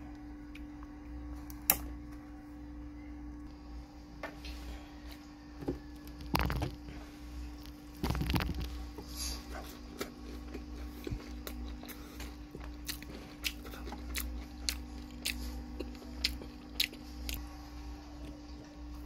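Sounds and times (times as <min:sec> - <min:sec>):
low hum: 0:00.0 - 0:19.0
person chewing crunchy food: 0:06.1 - 0:17.4.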